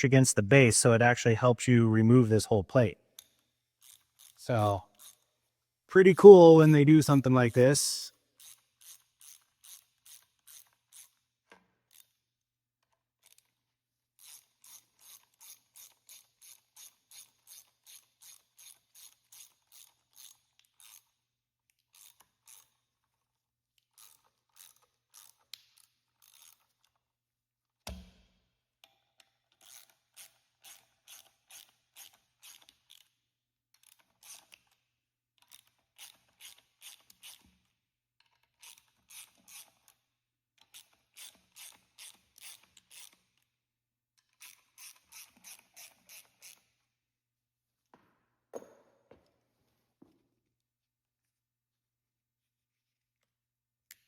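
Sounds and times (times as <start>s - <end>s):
ratchet wrench clicking: 3.2s - 4.4s, 5.0s - 5.2s, 8.4s - 11.2s, 14.2s - 21.2s, 21.9s - 22.8s, 23.9s - 27.0s, 29.2s - 33.2s, 35.4s - 37.4s, 38.4s - 40.0s, 40.6s - 43.2s, 44.3s - 46.6s.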